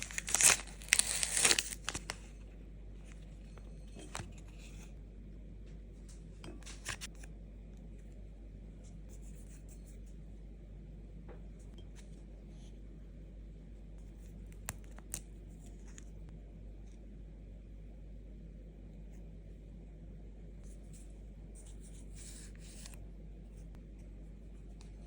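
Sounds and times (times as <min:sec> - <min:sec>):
handling clicks and crinkles: 0:00.0 - 0:02.2
steady low hum: 0:00.0 - 0:25.0.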